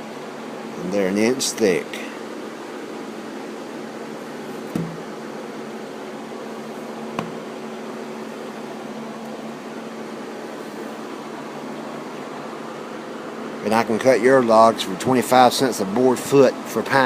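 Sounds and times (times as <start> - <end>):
motor hum: 3.2 - 8.9
light knocks: 4.7 - 5.1, 7.1 - 7.4.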